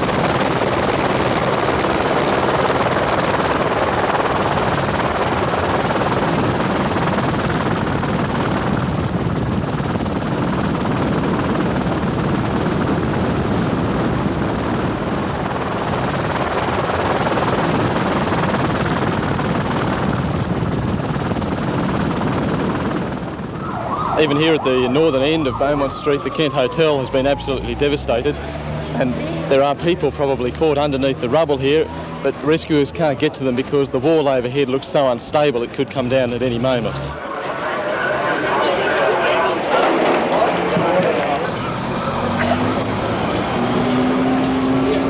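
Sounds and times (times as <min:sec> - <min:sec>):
helicopter rotor and engine: 0:00.0 - 0:45.0.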